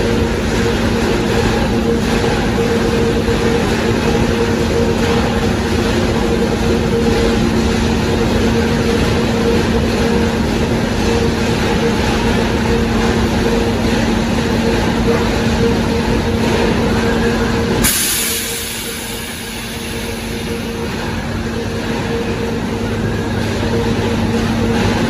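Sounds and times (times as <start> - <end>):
conveyor machinery rumble: 0.0 - 25.0.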